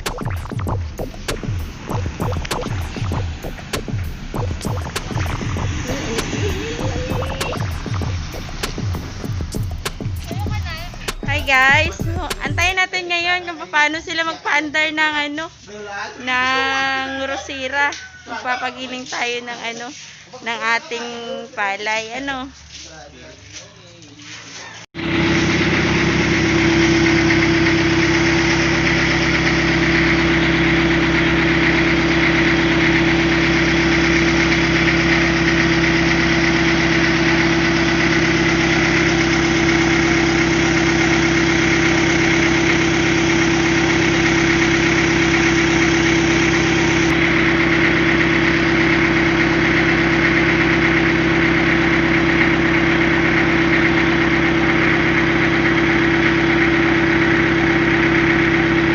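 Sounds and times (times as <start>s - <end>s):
rice milling machine drone: 0.0s - 12.8s, 25.0s - 58.9s.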